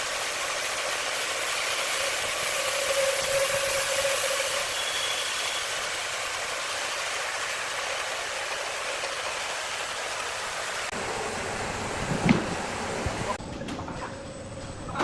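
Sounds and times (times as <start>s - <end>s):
sawmill saw cutting wood: 0.0s - 10.8s.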